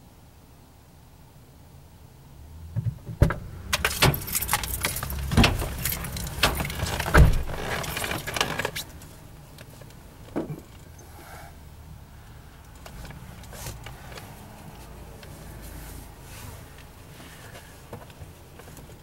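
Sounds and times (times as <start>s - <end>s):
metallic clanks and rattles: 2.8s - 9.0s.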